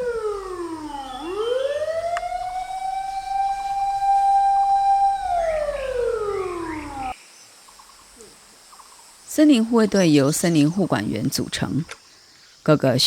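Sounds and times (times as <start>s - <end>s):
wailing fire alarm siren: 0.0s - 7.2s.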